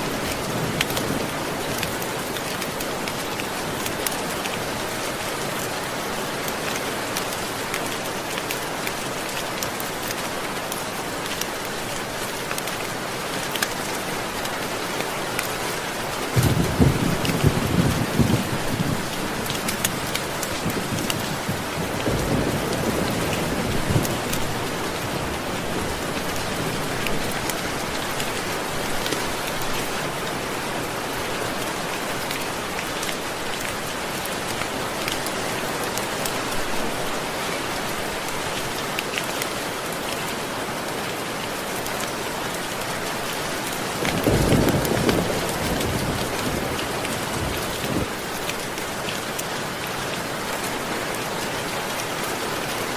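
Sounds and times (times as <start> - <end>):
steady rain: 0.0 - 52.9
thunder rumbling: 16.4 - 19.1, 44.0 - 48.1.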